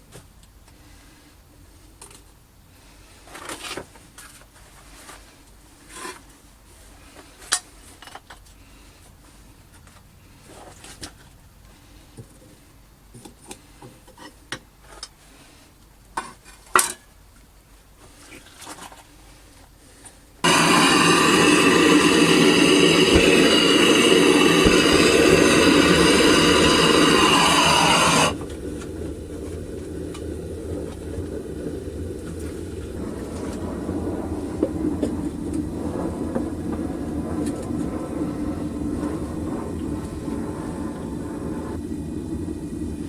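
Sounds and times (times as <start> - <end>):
propane burner roaring: 20.4 - 43.0.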